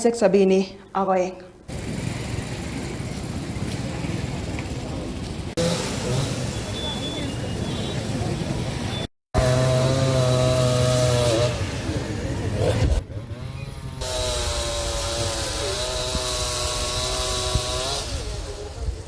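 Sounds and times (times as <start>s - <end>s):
chainsaw running: 5.6s - 6.8s, 9.4s - 19.0s.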